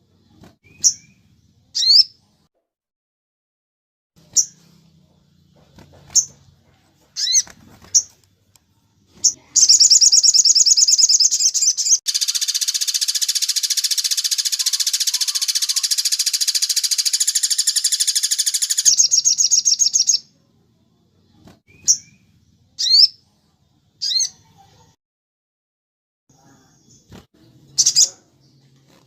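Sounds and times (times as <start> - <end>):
bird chirps: 0.6 - 2.2, 4.2 - 4.8, 7.2 - 8.2, 9.2 - 20.3, 21.7 - 23.2, 24.0 - 24.5, 26.4 - 28.7
songbird trilling: 7.2 - 7.4, 9.2 - 20.2, 22.8 - 23.2.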